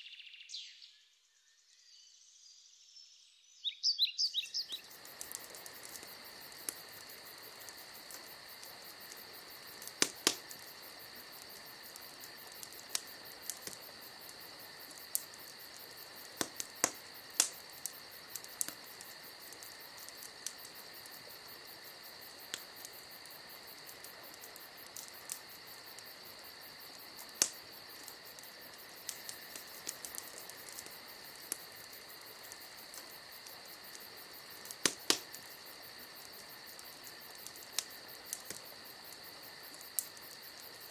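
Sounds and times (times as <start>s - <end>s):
crickets chirring: 0.0s - 40.9s
sharp pops: 9.8s - 10.6s, 34.6s - 35.4s.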